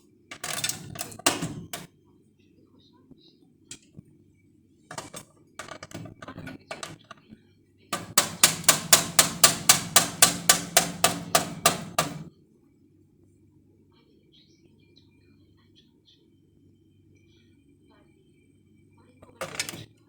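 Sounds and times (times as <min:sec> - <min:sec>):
sharp knocks: 0:00.3 - 0:01.9, 0:08.0 - 0:12.3
soft irregular knocking: 0:08.0 - 0:12.3.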